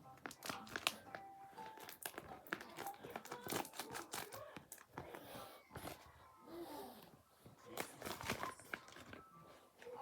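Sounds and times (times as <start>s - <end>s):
squishy toys crinkling: 0.2s - 5.2s, 7.7s - 10.0s.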